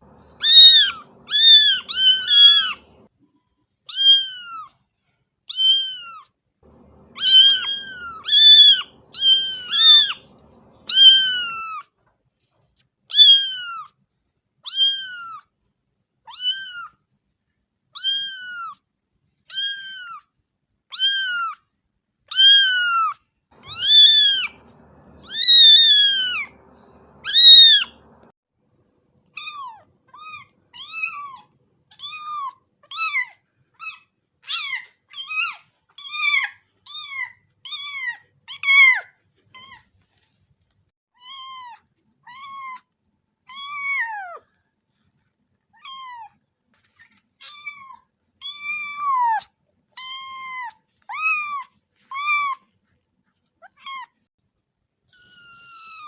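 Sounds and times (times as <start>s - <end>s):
cat meowing: 0.1s - 3.1s, 3.9s - 4.7s, 5.5s - 11.9s, 13.1s - 13.9s, 14.7s - 15.4s, 16.3s - 16.9s, 18.0s - 18.8s, 19.5s - 20.2s, 20.9s - 21.6s, 22.3s - 28.3s, 29.4s - 39.8s, 43.5s - 44.4s, 45.8s - 46.3s, 47.4s - 52.6s, 55.2s - 56.0s.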